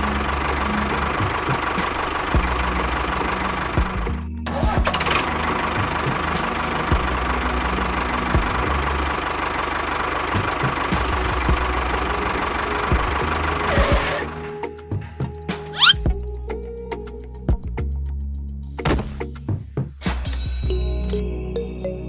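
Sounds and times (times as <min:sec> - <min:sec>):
small tractor motor running: 0:00.0 - 0:04.2, 0:04.8 - 0:14.4.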